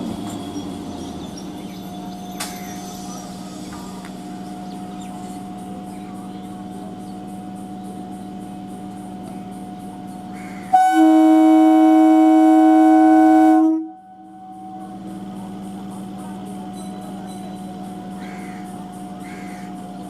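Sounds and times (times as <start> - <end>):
train electrical hum: 0.0 - 20.0
train horn blast: 10.6 - 15.2.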